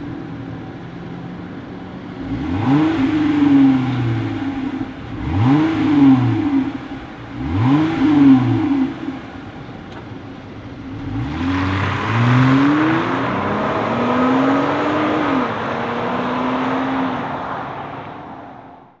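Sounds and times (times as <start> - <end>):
engine revving: 2.2 - 9.4, 10.9 - 18.4.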